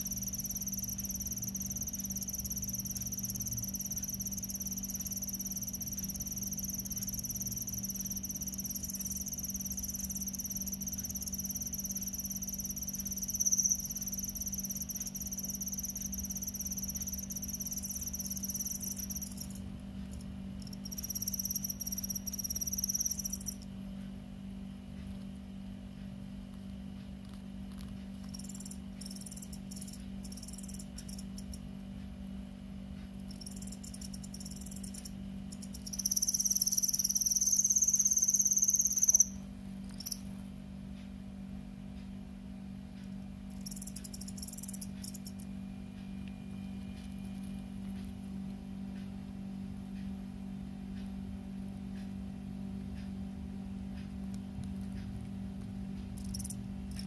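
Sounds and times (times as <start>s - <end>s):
cricket trilling: 0.0s - 23.6s, 27.7s - 31.7s, 33.2s - 40.2s, 43.5s - 45.5s, 56.2s - 57.0s
steady low hum: 0.0s - 57.0s.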